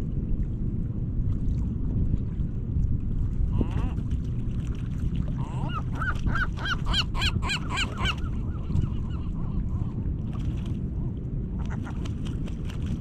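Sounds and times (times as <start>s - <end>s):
gull calling: 5.4s - 9.6s.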